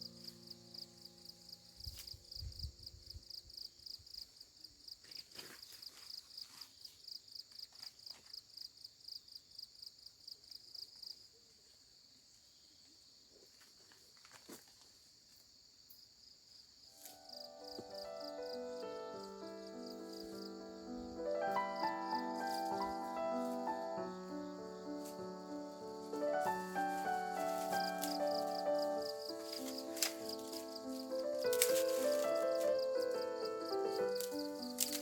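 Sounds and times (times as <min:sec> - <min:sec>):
insect chirping: 0:00.0 - 0:35.0
insect buzz: 0:15.0 - 0:35.0.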